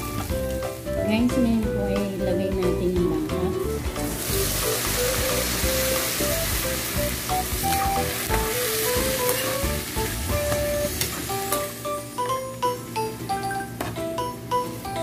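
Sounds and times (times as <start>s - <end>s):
background music melody: 0.0s - 15.0s
beef sizzling in hot oil: 4.0s - 11.9s.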